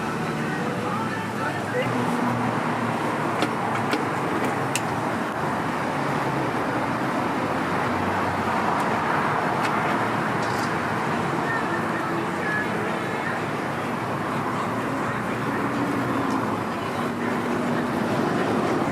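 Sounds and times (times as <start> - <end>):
passing traffic: 0.0 - 18.9.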